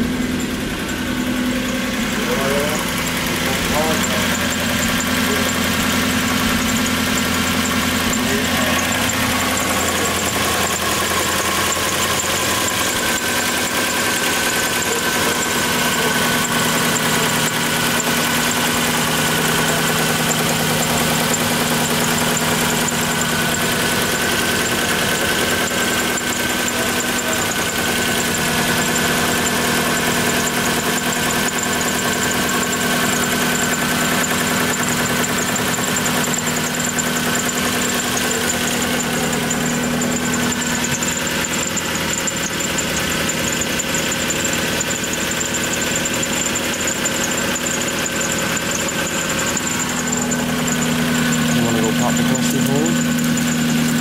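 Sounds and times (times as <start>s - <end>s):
steady high whine: 0.0s - 28.3s
car engine idling: 0.0s - 54.0s.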